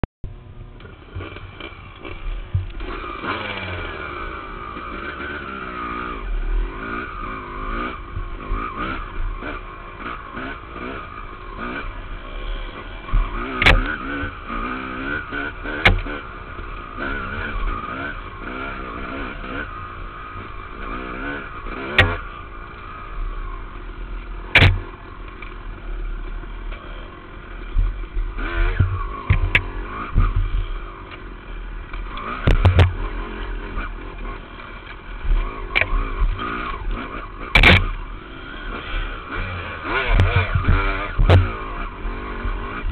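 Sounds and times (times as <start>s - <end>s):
dirt bike engine revving: 0.3s - 42.9s
sharp knocks: 13.1s - 13.9s, 15.8s - 16.2s, 21.9s - 22.2s, 24.5s - 24.8s, 32.4s - 33.0s, 37.5s - 38.0s.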